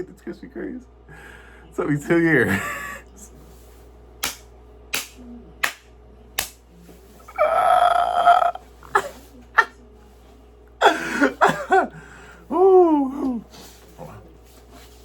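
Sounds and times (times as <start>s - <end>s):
man burping: 7.3s - 8.6s.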